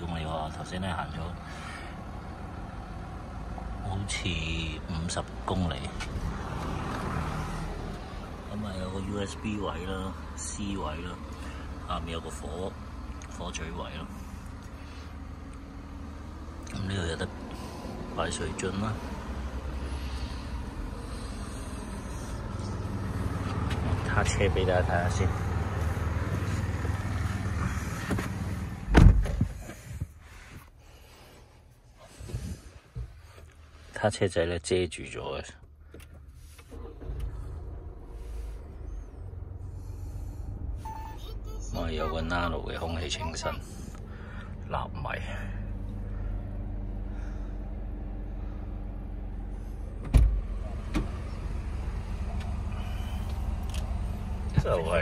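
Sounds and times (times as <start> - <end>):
car engine drone inside cabin: 0.0 - 55.0
low thump: 28.9 - 29.6.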